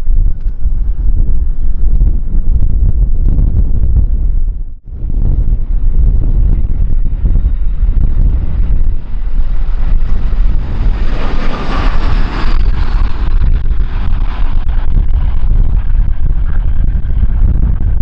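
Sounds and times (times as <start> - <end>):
wind buffeting microphone: 0.0 - 18.0
jet airliner engine noise: 5.0 - 18.0.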